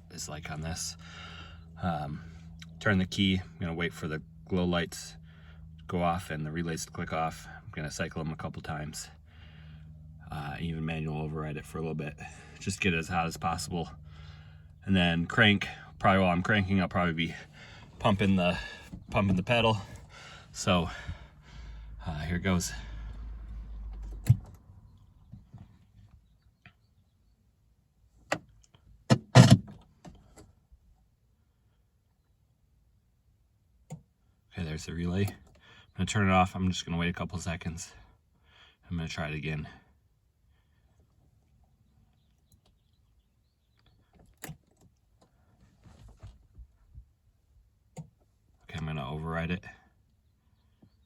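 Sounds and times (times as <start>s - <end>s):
sharp clicks in truck cab: 24.0s - 24.6s, 28.2s - 30.5s, 44.1s - 45.3s
faint clicks and rustles: 43.6s - 47.0s.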